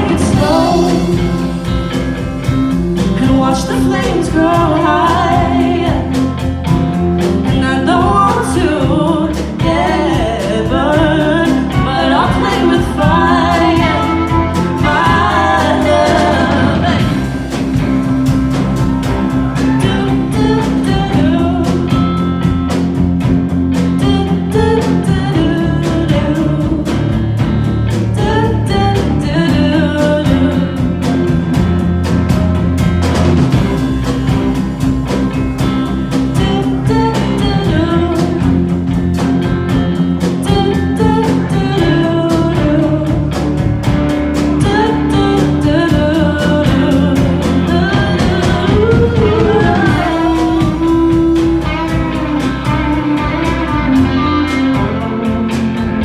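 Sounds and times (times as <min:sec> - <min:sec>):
person singing vocal runs: 0:00.0 - 0:22.7, 0:44.5 - 0:56.0
live pop band playing: 0:00.0 - 0:56.0
steady drum beat: 0:00.0 - 0:56.0.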